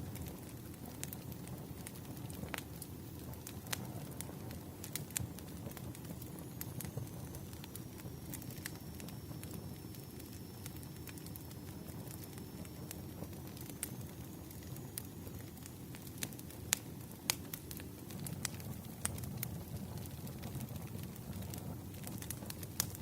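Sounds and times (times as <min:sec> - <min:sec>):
wood fire crackling: 0:00.0 - 0:23.0
sharp snaps and pops: 0:12.1 - 0:23.0.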